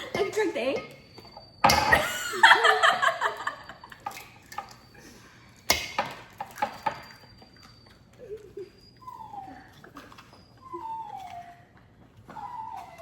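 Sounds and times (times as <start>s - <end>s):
bowls and utensils knocking: 0.0s - 2.1s, 5.7s - 7.2s.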